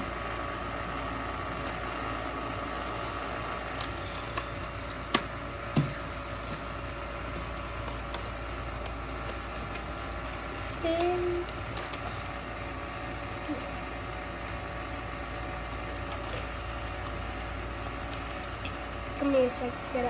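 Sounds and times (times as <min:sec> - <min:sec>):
steady room hum: 0:00.0 - 0:20.0
packaging clicks and snaps: 0:03.6 - 0:12.4, 0:15.2 - 0:18.8.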